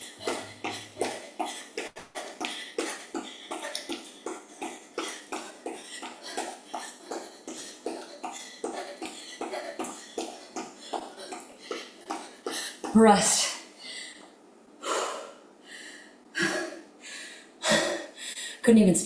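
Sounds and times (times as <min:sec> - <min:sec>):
person breathing hard: 0:00.0 - 0:12.9, 0:13.5 - 0:18.6
quick footsteps: 0:00.0 - 0:13.2.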